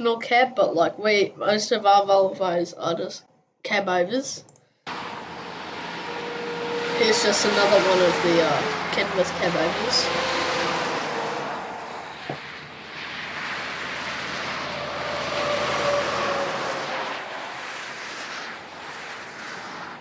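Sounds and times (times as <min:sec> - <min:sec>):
heavy truck driving past: 0:04.9 - 0:19.8.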